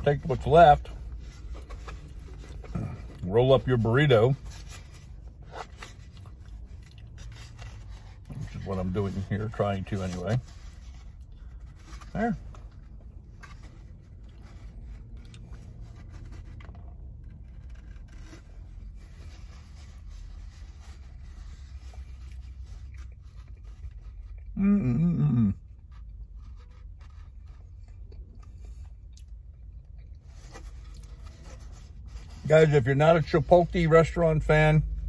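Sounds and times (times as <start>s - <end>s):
mouth and handling scrapes: 0.0s - 34.7s
low steady hum: 0.0s - 35.0s
man chewing: 5.1s - 8.3s, 11.1s - 18.1s, 21.9s - 24.6s, 25.5s - 31.4s.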